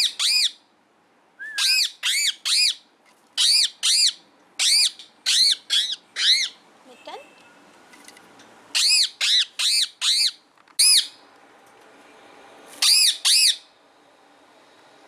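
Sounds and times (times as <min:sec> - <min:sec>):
bird squawking: 0:03.4 - 0:06.6, 0:12.8 - 0:13.7.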